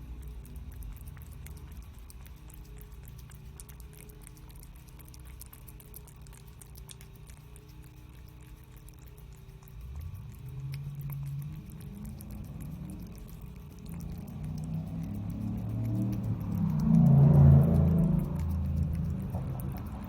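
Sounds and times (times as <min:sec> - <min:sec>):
cat chewing and licking: 0:00.0 - 0:20.0
steady low hum: 0:00.0 - 0:20.0
low droning tone rising: 0:09.9 - 0:20.0.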